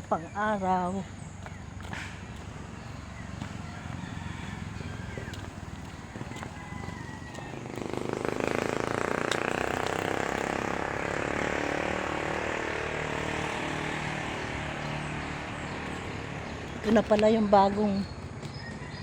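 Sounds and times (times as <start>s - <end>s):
vehicle engine passing by: 1.4s - 19.0s.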